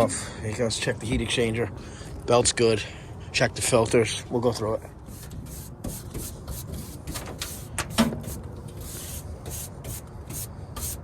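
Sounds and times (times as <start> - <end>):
stiff brush scrubbing: 5.0 - 11.0.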